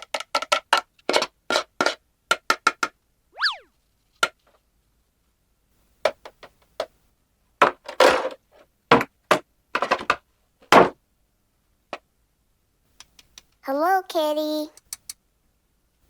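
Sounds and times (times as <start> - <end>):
plastic toy clicks and taps: 0.0 - 3.0.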